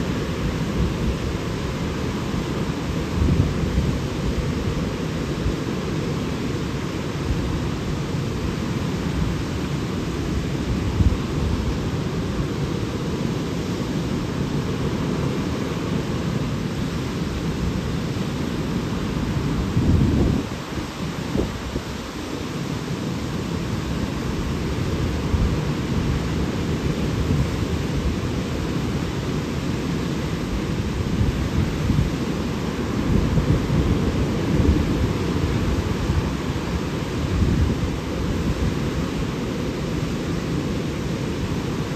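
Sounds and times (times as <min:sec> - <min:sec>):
waterfall roaring: 0:00.0 - 0:41.9
wind buffeting microphone: 0:19.4 - 0:22.1, 0:30.8 - 0:39.0.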